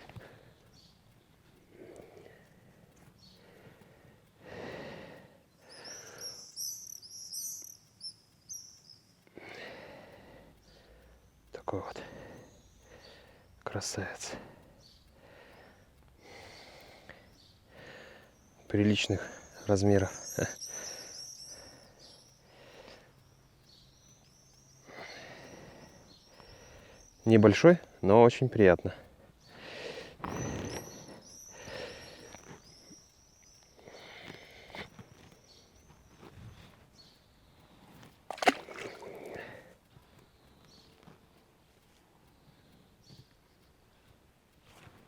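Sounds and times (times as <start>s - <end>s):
songbird chirping: 0.0s - 44.5s
soft rustles: 44.0s - 45.0s.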